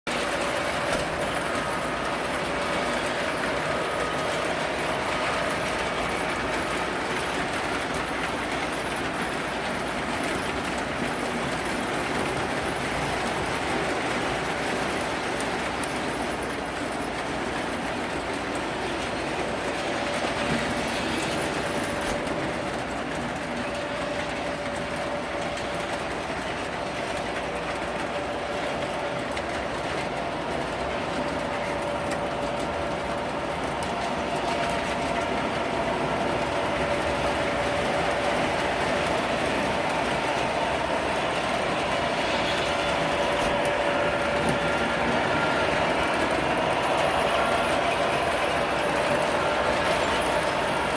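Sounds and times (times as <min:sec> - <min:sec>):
refrigerator whirring: 0:00.1 - 0:50.9
refrigerator humming: 0:28.2 - 0:50.9.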